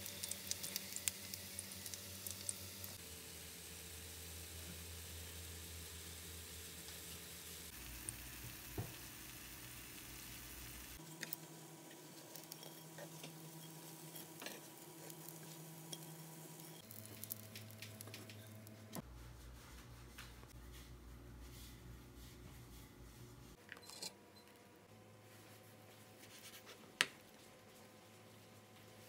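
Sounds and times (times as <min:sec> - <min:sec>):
oil popping and crackling: 0:00.0 - 0:03.0, 0:12.1 - 0:18.6
food frying in oil: 0:00.0 - 0:18.8.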